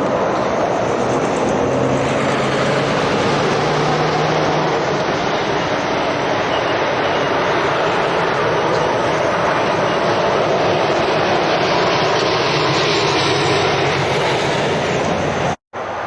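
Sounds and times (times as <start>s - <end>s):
heavy lorries driving past: 0.0s - 10.9s.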